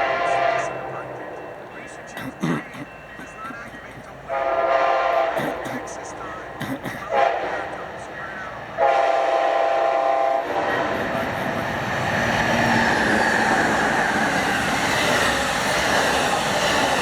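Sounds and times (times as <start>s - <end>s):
train horn chord: 0.0s - 1.1s, 4.3s - 5.3s, 8.8s - 11.0s
train passing at speed: 0.0s - 17.0s.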